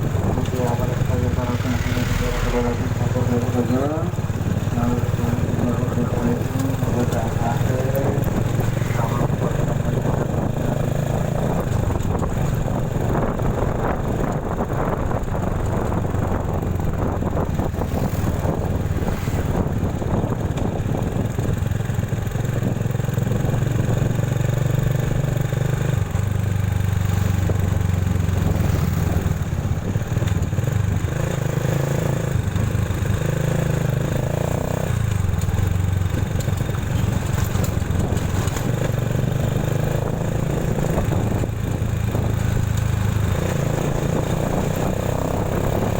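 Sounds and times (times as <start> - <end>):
motorcycle engine drone: 0.0 - 45.9
road and wind noise: 0.0 - 45.9.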